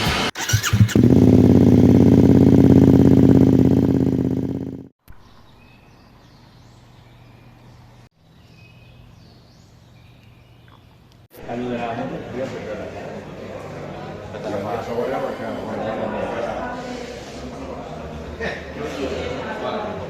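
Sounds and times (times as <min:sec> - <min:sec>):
bird chirps: 0:05.1 - 0:11.1.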